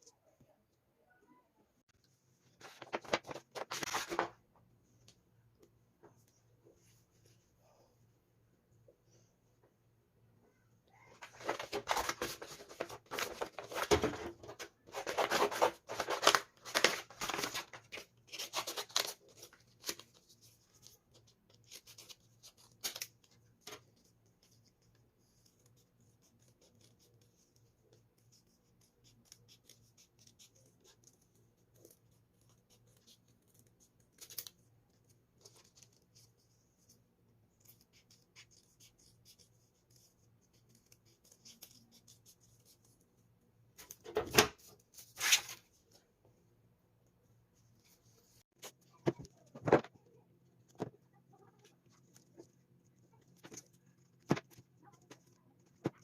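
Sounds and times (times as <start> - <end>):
paper rustling and scraping: 2.5 - 4.4, 11.2 - 24.0, 43.8 - 45.8.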